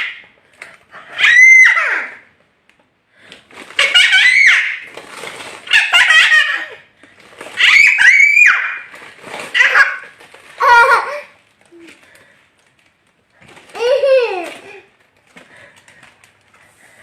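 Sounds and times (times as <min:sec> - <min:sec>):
child squealing and laughing: 0:01.0 - 0:02.3, 0:03.8 - 0:05.0, 0:05.6 - 0:06.9, 0:07.5 - 0:11.3, 0:13.7 - 0:14.9.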